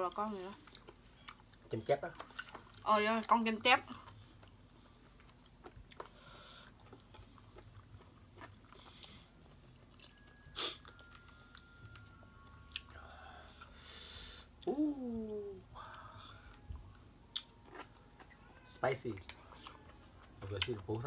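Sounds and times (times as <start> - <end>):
soft chewing: 0.0 - 21.0.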